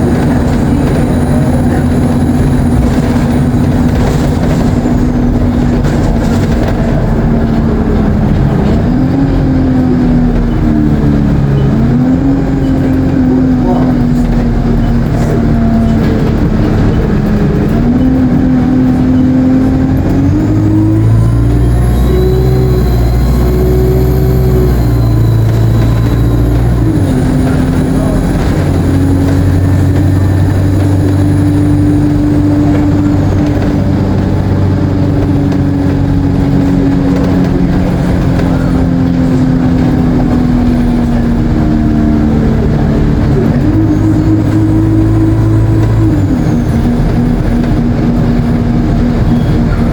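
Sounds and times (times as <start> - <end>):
bus engine pulling under load: 0.0 - 49.9
turbocharger whine: 0.0 - 49.9.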